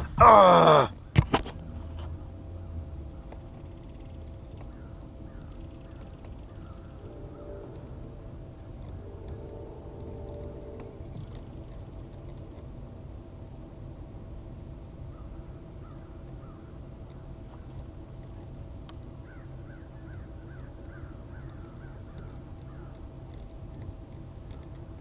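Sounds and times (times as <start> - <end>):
steady low hum: 0.0 - 25.0
bird calling sharp notes: 4.6 - 11.6.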